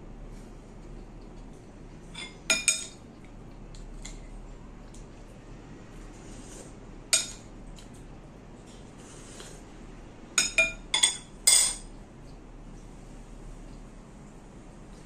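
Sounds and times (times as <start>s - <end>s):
utensils clinking on ceramic bowl: 2.2s - 3.0s, 7.1s - 7.5s, 10.4s - 11.9s.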